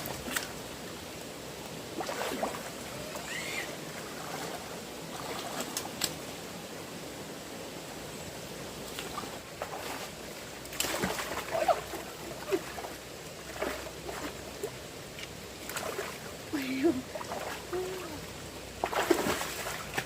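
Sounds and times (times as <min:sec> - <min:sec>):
splashing through water: 0:00.0 - 0:00.6, 0:01.9 - 0:06.2, 0:08.9 - 0:20.0
fast-flowing stream water: 0:00.0 - 0:20.0.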